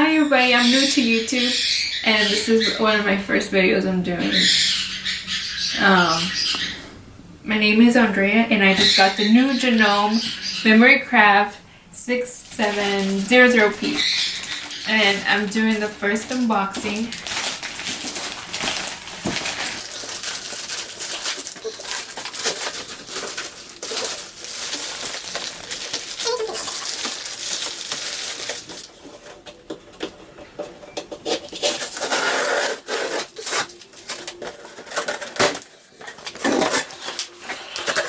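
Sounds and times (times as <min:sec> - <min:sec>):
plastic and cardboard crinkling: 0:12.6 - 0:38.0.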